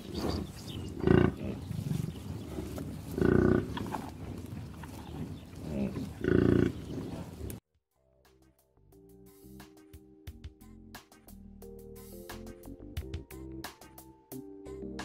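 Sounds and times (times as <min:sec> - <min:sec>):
bison grunting bellows: 0:00.0 - 0:07.6.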